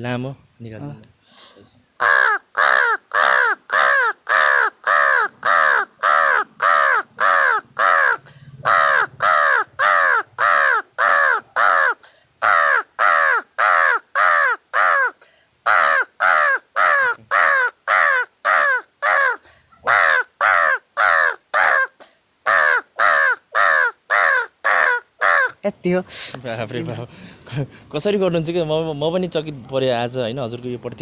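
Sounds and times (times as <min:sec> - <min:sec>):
man imitating crow caws: 0:02.0 - 0:25.6.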